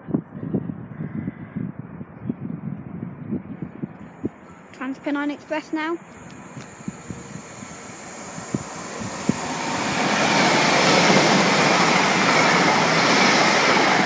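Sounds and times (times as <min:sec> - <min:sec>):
passenger train passing: 0:04.0 - 0:14.0
faint whine: 0:04.3 - 0:09.6.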